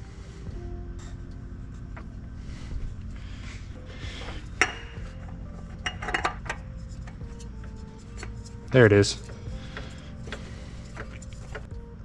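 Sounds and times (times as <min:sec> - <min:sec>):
steady low hum: 0:00.0 - 0:12.0
metal tools clinking and rattling: 0:04.6 - 0:07.2.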